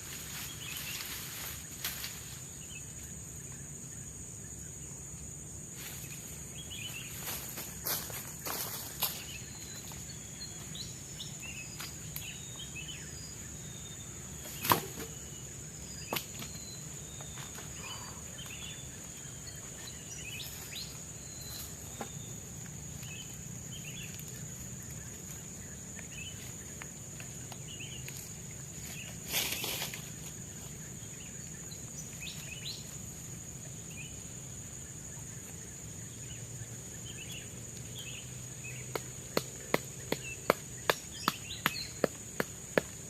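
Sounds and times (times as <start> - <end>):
forest insects droning: 0.0 - 43.0.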